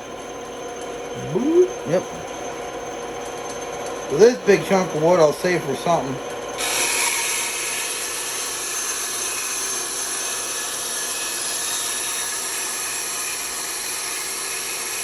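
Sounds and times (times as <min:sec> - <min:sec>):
band saw cutting wood: 0:06.6 - 0:15.0.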